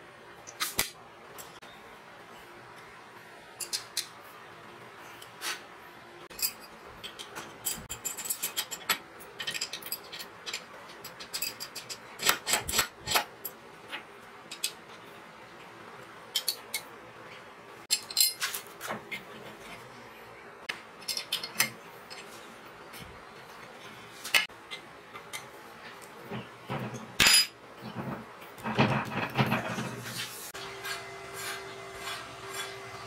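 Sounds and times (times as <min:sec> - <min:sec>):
steel parts clinking: 0:03.6 - 0:04.1, 0:06.3 - 0:13.6, 0:17.9 - 0:18.8.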